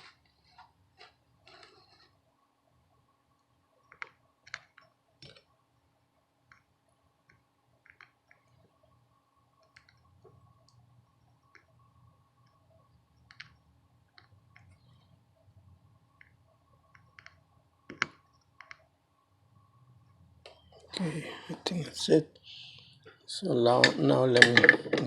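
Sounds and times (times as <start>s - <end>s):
faint steady hum: 0.0s - 25.0s
hand tools tapping circuit board: 16.9s - 18.8s.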